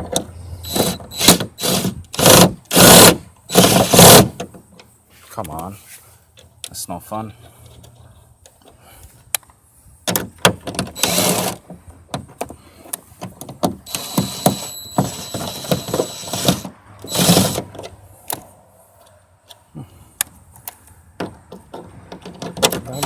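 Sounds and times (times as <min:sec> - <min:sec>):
steady mechanical noise: 0:00.6 - 0:04.4, 0:11.0 - 0:11.6, 0:13.9 - 0:17.7.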